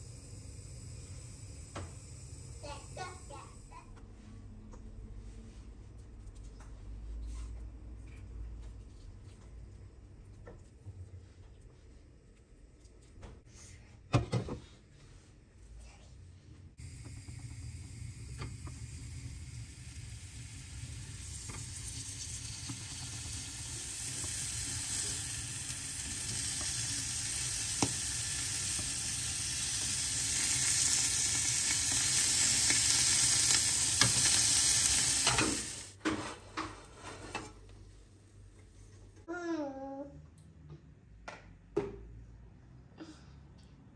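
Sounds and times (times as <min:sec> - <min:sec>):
food sizzling in a pan: 0:00.0 - 0:03.7, 0:16.8 - 0:36.0.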